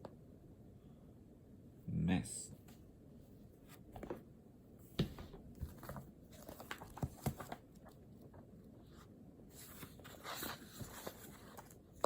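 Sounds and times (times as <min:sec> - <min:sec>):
paper rustling: 0:05.6 - 0:12.0.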